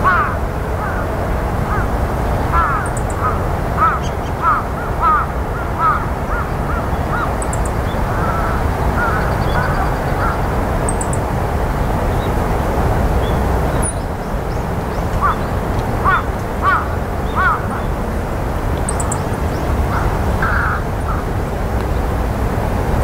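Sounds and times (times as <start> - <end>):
low rush of wind: 0.0 - 23.0
faint high chirps of small birds: 6.9 - 11.3, 13.2 - 16.2, 18.8 - 20.1.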